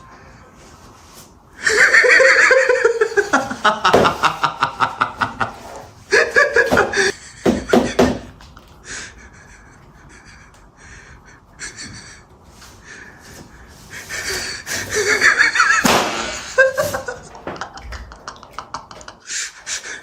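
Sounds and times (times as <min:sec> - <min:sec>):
person laughing hard: 0:01.6 - 0:12.2, 0:13.9 - 0:20.0
breathy panting: 0:08.8 - 0:14.9.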